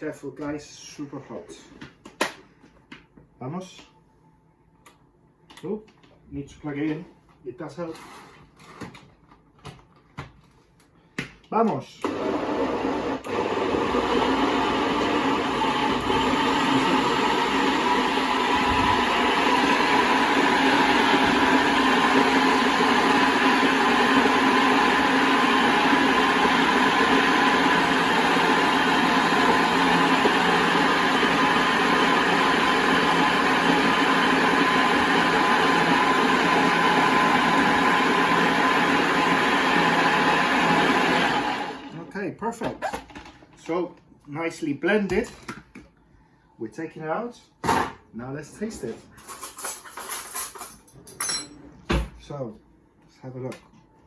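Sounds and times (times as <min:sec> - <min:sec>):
electric blender running: 0:12.0 - 0:42.1.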